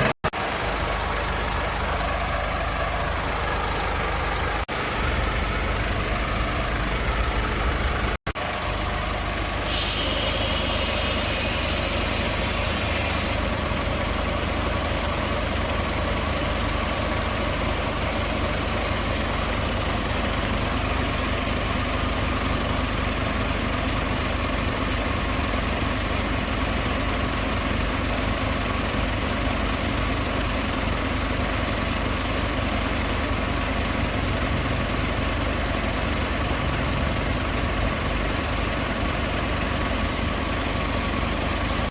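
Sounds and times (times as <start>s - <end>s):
diesel truck idling: 0.0s - 41.9s
hiss: 9.6s - 13.5s.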